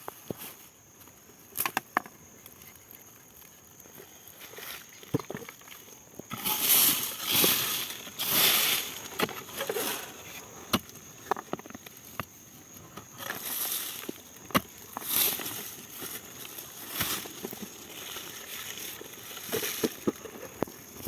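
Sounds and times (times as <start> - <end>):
soil and dry plants crunching: 0.0 - 21.0.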